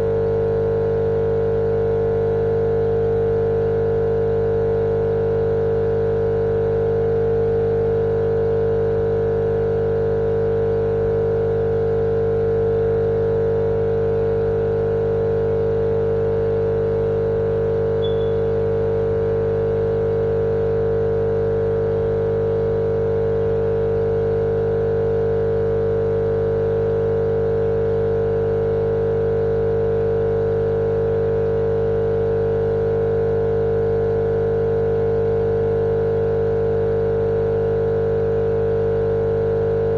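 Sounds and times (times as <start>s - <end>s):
white noise machine drone: 16.1s - 19.8s.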